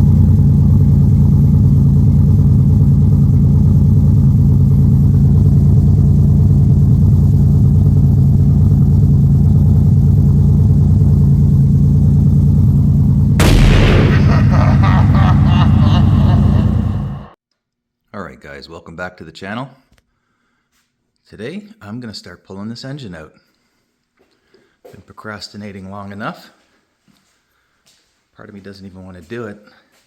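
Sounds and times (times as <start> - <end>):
car engine exhaust rumble: 0.0 - 17.3.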